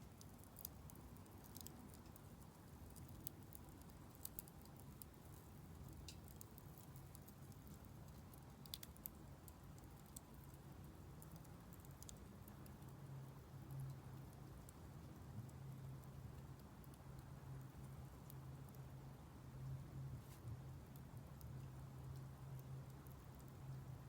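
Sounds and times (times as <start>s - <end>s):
wood fire crackling and popping: 0.0s - 18.9s.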